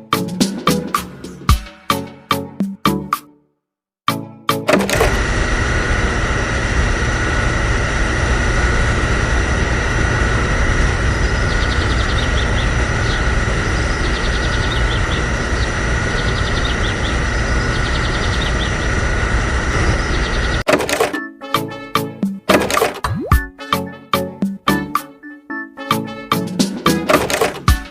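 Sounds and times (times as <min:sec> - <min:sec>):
high whine: 0:04.8 - 0:20.7.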